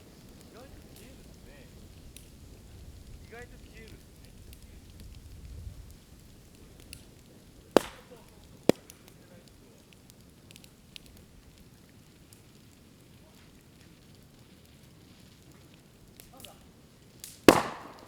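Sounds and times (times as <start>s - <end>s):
fire crackling: 0.0s - 18.0s
bamboo bursting with sharp bangs: 7.7s - 9.2s, 17.2s - 18.0s.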